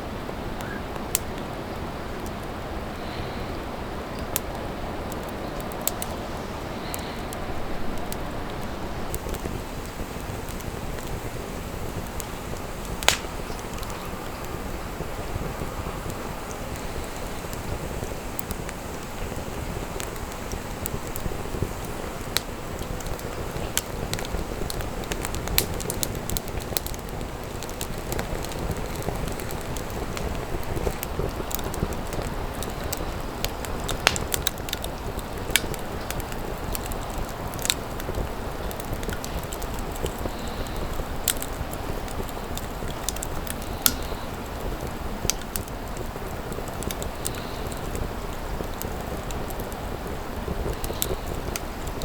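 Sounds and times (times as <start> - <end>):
wood fire crackling and popping: 0.2 - 52.0
low rushing noise: 5.8 - 19.4.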